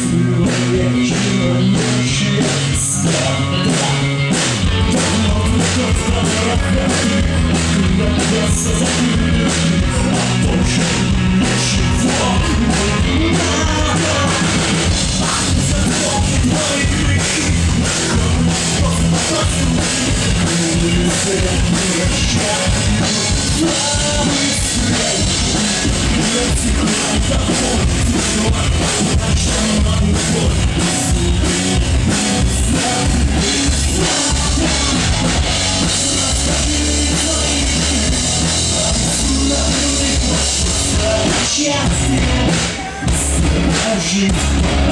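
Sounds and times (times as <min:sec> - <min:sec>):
bass guitar: 0:00.0 - 0:44.9
drum kit beat: 0:00.0 - 0:44.9
electric guitars: 0:00.0 - 0:44.9.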